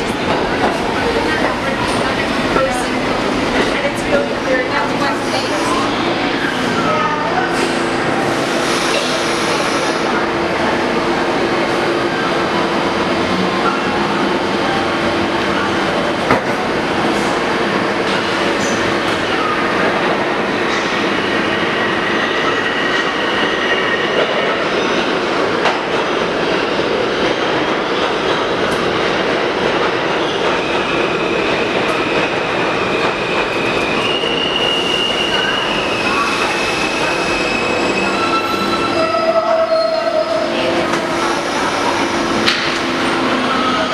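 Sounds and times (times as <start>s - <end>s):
subway train rumbling on rails: 0.0s - 43.9s
high wheel squeals: 33.6s - 42.5s.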